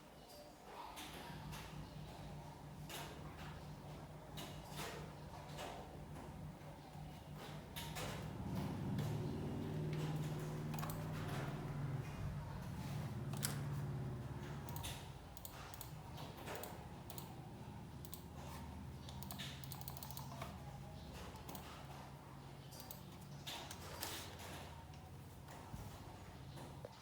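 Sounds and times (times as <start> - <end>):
computer keyboard clicks: 7.4 - 12.0, 13.3 - 13.7, 14.4 - 22.0, 22.7 - 24.6.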